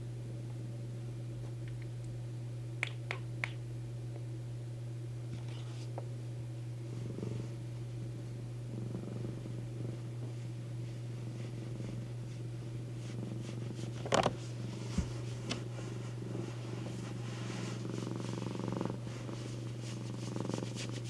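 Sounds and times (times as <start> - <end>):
steady low hum: 0.0 - 21.0
cat purring: 6.8 - 21.0.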